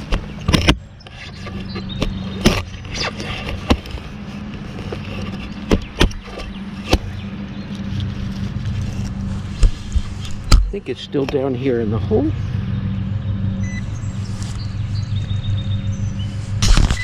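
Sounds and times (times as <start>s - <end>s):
steady low hum: 0.0s - 17.0s
shovel digging into soil: 16.5s - 17.0s.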